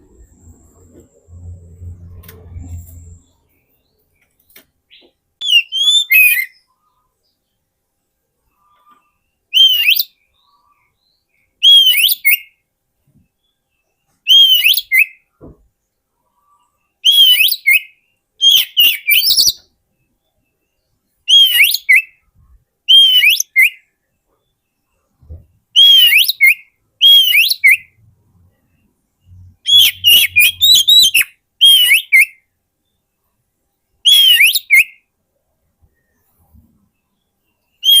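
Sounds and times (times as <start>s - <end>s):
bird song whistled phrases: 4.9s - 6.7s, 9.5s - 10.9s, 11.6s - 12.6s, 14.3s - 15.2s, 17.0s - 19.7s, 21.3s - 22.2s, 22.9s - 23.9s, 25.7s - 28.0s, 29.3s - 32.5s, 34.0s - 35.1s, 37.8s - 38.0s.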